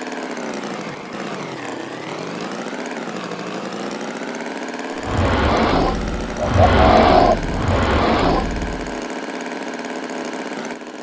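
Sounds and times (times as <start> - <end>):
deep noisy sound: 5.0 - 9.0
motor running: 5.0 - 9.0.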